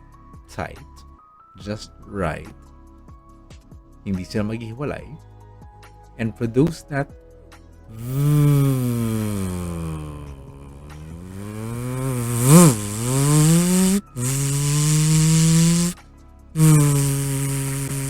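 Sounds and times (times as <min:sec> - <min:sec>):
man making buzzing v sound: 0:07.9 - 0:16.0, 0:16.6 - 0:18.0.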